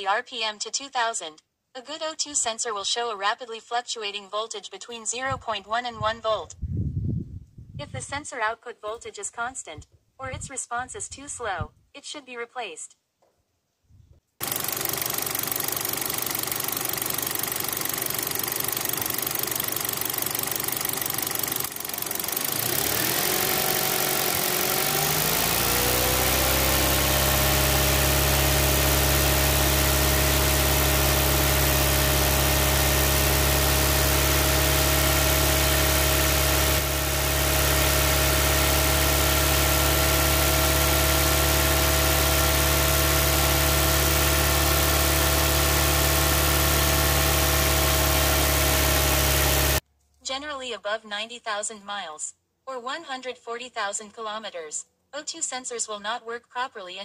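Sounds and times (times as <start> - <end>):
car engine idling and revving: 14.4 - 49.8.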